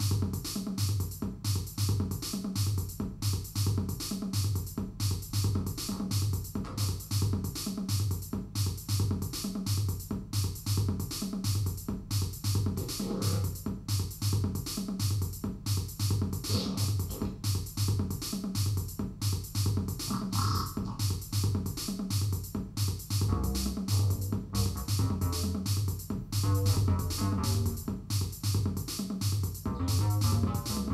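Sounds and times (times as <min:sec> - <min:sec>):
drum machine beat: 0:00.0 - 0:30.9
synthesizer bass line: 0:12.8 - 0:13.5, 0:16.4 - 0:17.4, 0:20.0 - 0:21.2, 0:23.2 - 0:25.7, 0:26.3 - 0:27.9, 0:29.7 - 0:30.9.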